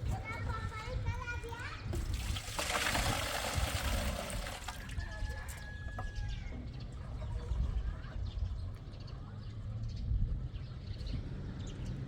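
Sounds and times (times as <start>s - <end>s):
wind rumble on microphone: 0.0s - 12.0s
water splashing: 2.0s - 4.9s.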